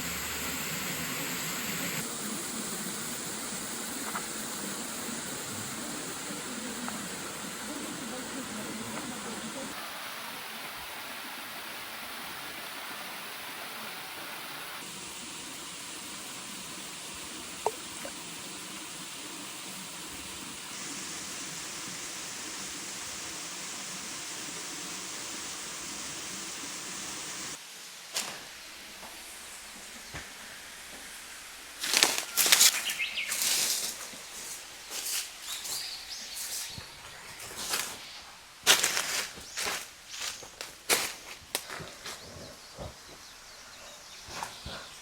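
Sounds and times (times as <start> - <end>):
waterfall rushing: 0.0 - 27.6.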